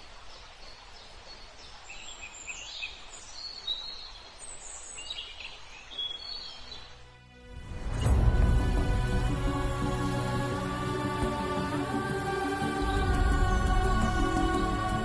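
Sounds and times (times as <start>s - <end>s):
outdoor background hiss: 0.0s - 15.0s
music: 6.8s - 15.0s.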